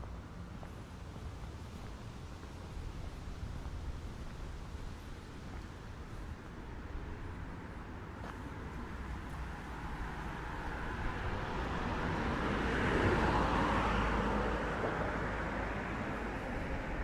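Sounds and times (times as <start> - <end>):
vehicle passing: 9.2 - 17.0.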